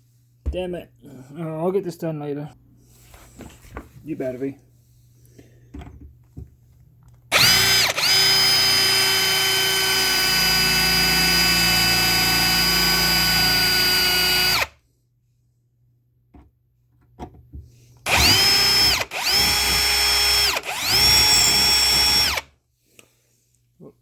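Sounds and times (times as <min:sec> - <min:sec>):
cordless drill whining: 0:07.3 - 0:14.7, 0:18.1 - 0:22.5.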